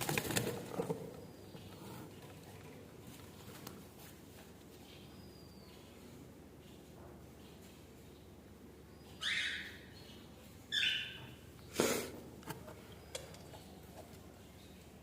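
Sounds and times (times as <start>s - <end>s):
cockatiels harsh calls: 9.2s - 9.8s.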